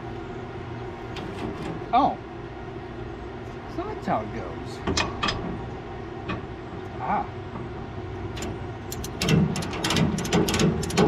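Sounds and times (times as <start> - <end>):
ratchet strap clicking: 8.9 - 11.0.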